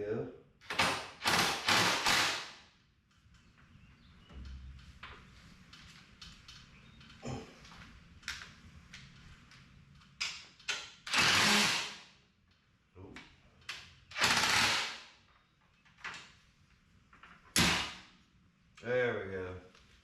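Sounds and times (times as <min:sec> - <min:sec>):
cordless drill driving bolt: 0:11.1 - 0:12.0, 0:14.1 - 0:15.0.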